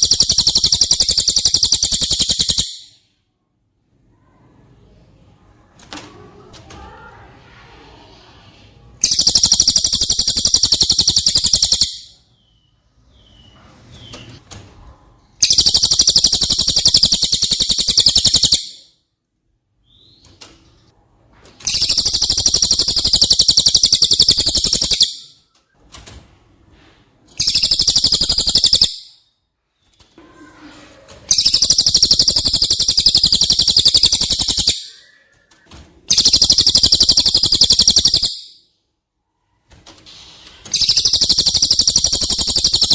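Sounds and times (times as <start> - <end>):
bird rapid high trill: 0.0 - 3.0, 9.0 - 12.2, 15.4 - 18.9, 21.7 - 25.4, 27.4 - 29.2, 31.3 - 35.1, 36.1 - 38.7, 40.7 - 42.9.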